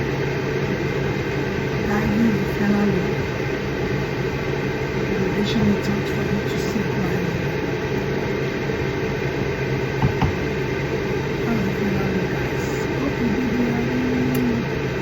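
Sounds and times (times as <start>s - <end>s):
mechanical hum: 0.0s - 15.0s
short knock: 10.0s - 10.4s.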